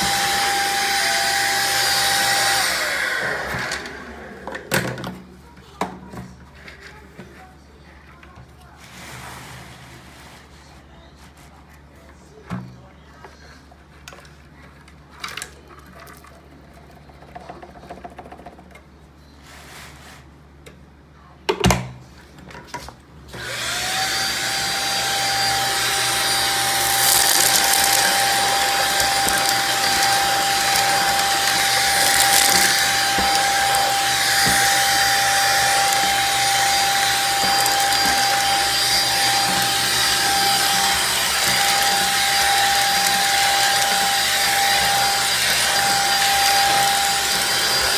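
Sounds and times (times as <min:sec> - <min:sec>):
vacuum cleaner running: 0:00.0 - 0:05.3, 0:23.3 - 0:47.9.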